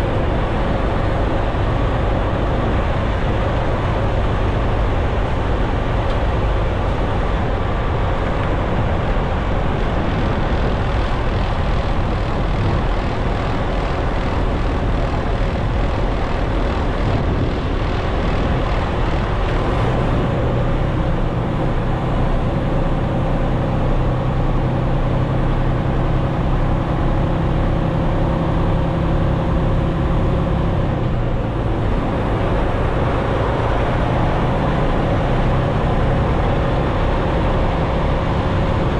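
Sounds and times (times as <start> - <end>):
diesel engine drone inside cab: 0.0 - 38.9.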